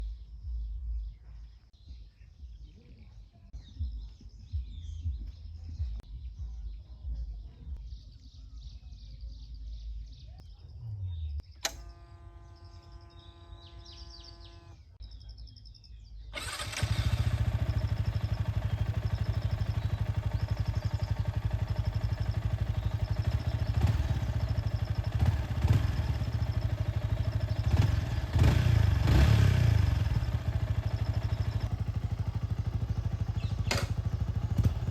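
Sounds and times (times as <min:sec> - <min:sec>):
birds chirping: 0:00.0 - 0:34.9
click: 0:11.6 - 0:11.9, 0:33.7 - 0:34.0
motorcycle engine running: 0:11.6 - 0:14.9, 0:16.4 - 0:34.9.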